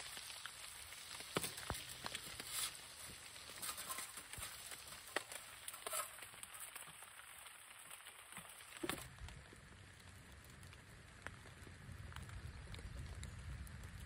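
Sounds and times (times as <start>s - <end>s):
light rain pattering on plastic: 0.0s - 14.0s.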